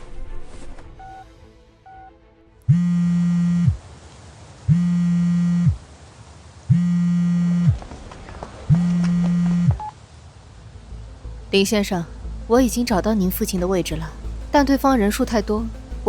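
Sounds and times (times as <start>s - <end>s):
phone buzzing on vibrate: 2.7s - 3.8s, 4.7s - 5.8s, 6.7s - 7.8s, 8.7s - 9.9s.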